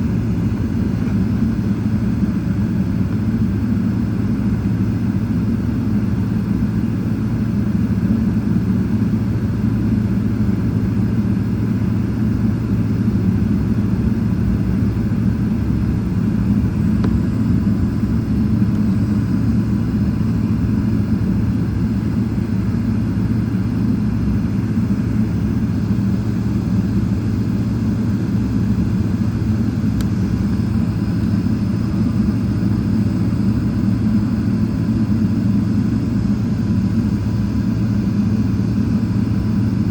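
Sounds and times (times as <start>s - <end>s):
jet engine low rumble: 0.0s - 39.9s.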